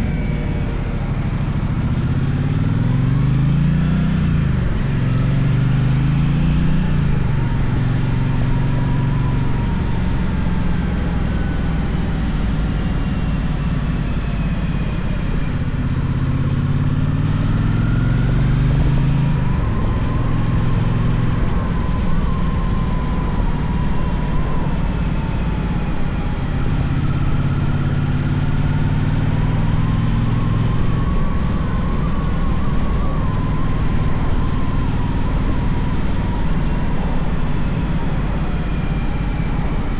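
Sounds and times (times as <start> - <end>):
riding noise: 0.0 - 4.9.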